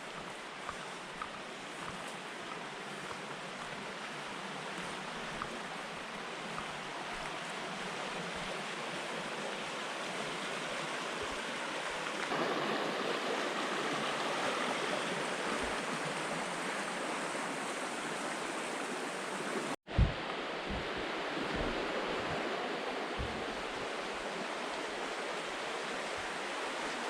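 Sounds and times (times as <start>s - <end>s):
rushing water of river rapids: 0.0s - 27.0s.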